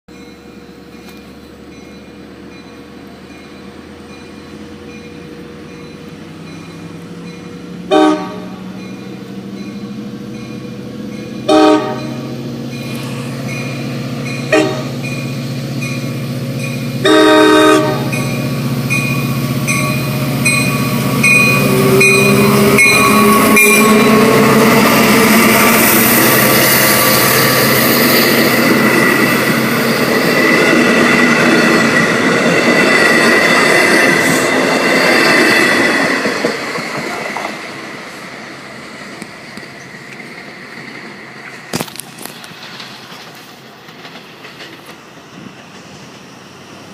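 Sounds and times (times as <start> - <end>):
diesel train rumbling: 0.1 - 46.9
train horn blasts: 7.8 - 8.8, 11.4 - 12.4, 14.4 - 15.1, 17.0 - 18.5, 19.7 - 26.1
bell dinging: 18.1 - 24.2.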